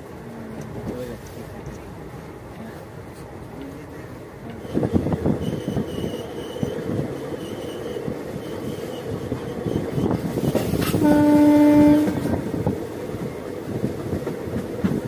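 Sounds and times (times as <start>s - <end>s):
train wheels rumbling on track: 0.0s - 15.0s
train horn blast: 10.8s - 12.4s.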